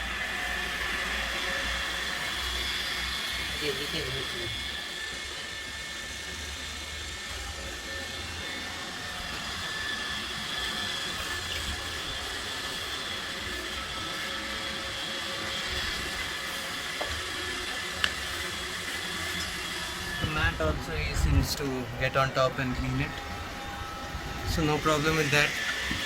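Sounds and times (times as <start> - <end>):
robot vacuum whirring and whining: 0.0 - 26.0.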